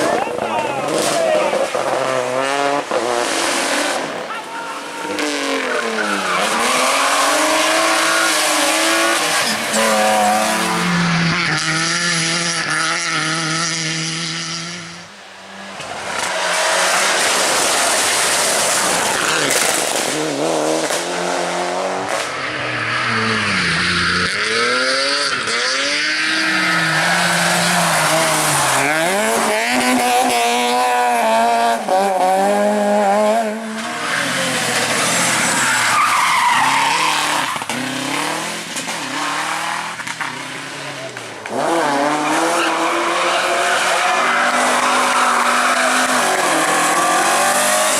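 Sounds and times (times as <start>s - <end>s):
rally car engines revving hard: 0.0s - 47.9s
tyre squeal and skidding: 3.5s - 12.2s, 22.2s - 31.1s, 33.6s - 40.4s, 41.9s - 47.9s.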